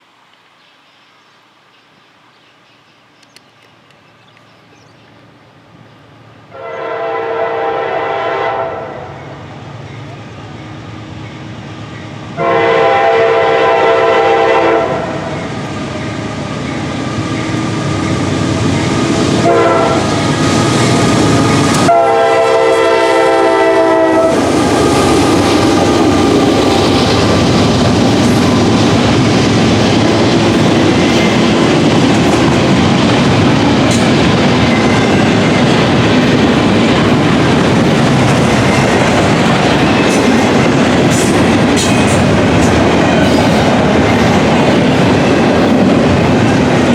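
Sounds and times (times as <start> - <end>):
train wheels on rail: 3.0 - 46.9
locomotive horn blasts: 6.5 - 9.3, 12.4 - 15.3, 19.4 - 20.1, 21.7 - 24.4.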